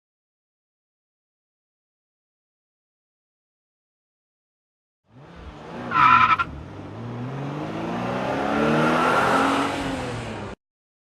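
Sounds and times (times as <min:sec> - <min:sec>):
car engine accelerating: 0:05.1 - 0:10.6
tire squeal: 0:05.8 - 0:06.6.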